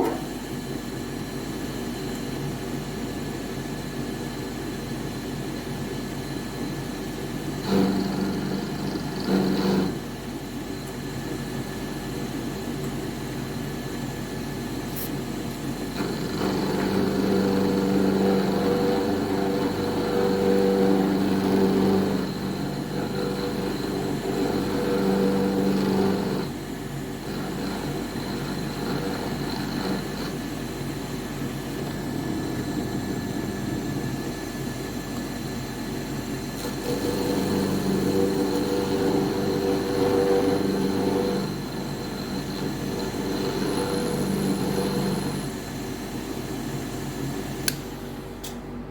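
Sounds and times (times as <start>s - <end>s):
cnc router humming: 0.0s - 1.5s, 15.6s - 48.9s.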